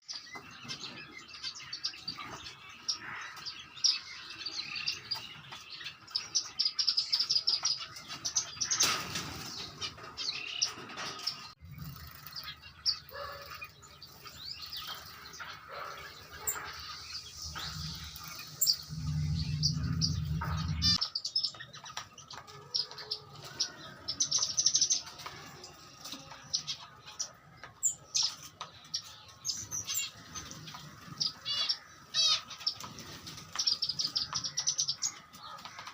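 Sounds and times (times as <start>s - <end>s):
finches chirping: 11.7s - 25.1s
low rumble: 17.1s - 21.0s.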